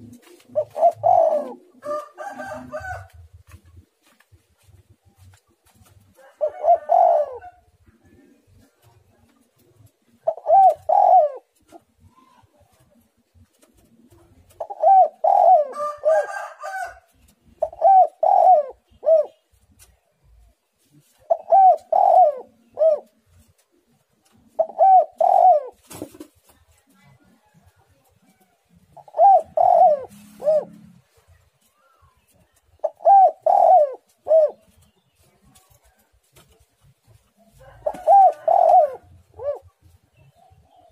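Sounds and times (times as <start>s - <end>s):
dove cooing: 0.0s - 5.3s, 6.1s - 19.5s, 20.3s - 26.3s, 28.2s - 36.1s, 37.5s - 40.9s.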